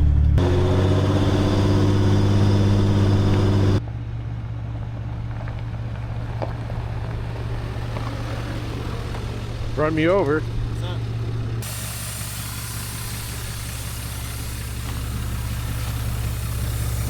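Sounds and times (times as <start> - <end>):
low drone: 0.0 - 3.8
diesel engine running: 0.0 - 17.0.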